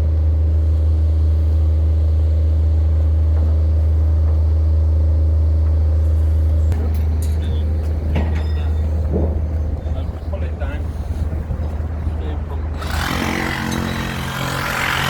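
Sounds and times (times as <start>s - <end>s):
engine humming: 6.0s - 15.0s
short metallic knocks: 6.7s - 15.0s.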